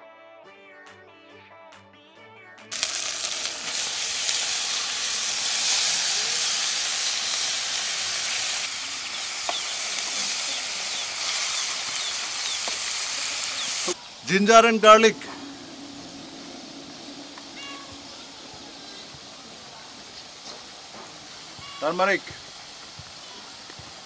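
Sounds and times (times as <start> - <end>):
meat sizzling in hot oil: 2.7 - 24.0
quiet music: 13.9 - 21.4.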